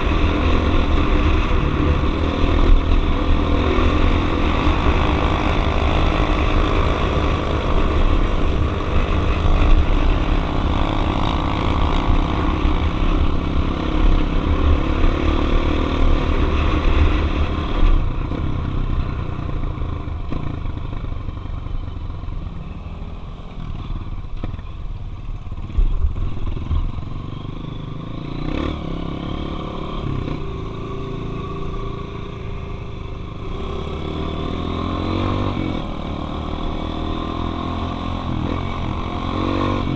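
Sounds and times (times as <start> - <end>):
dirt bike engine running: 0.0 - 22.6.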